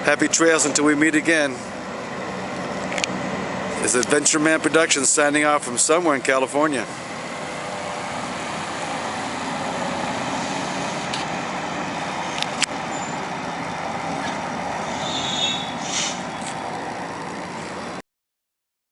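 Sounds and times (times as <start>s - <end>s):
outdoor background noise: 0.0s - 18.0s
brief high squeal: 14.9s - 16.3s.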